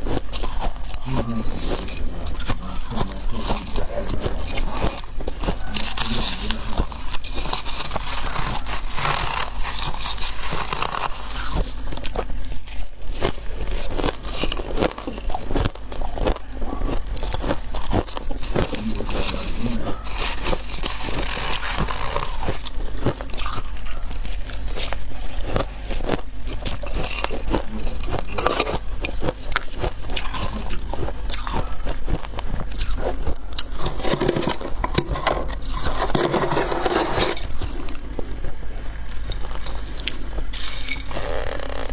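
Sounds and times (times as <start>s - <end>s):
chewing ice crunching: 0.0s - 41.9s
scraping: 33.7s - 38.1s.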